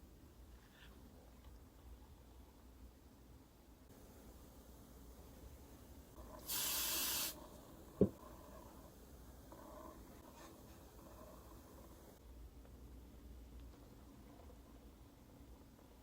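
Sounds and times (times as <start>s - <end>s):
spray paint can hissing: 6.4s - 7.4s.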